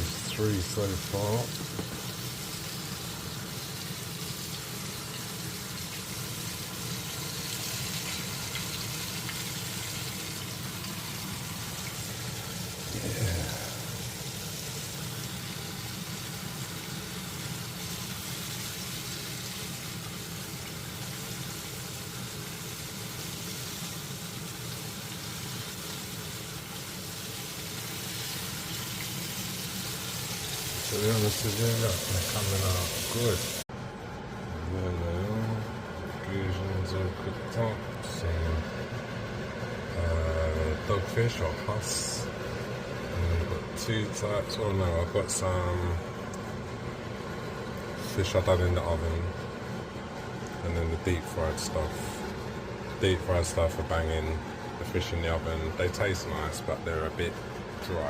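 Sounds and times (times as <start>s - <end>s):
fish deep-frying in oil: 0.0s - 33.6s.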